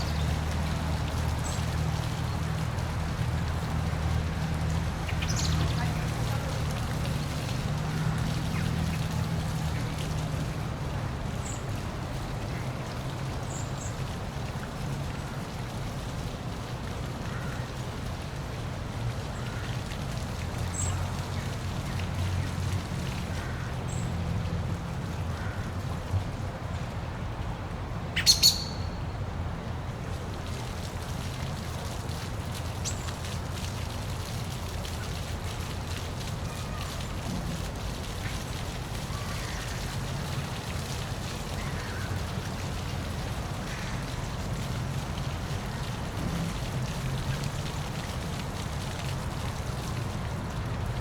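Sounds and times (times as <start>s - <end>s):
bird chirping: 28.2s - 29.0s.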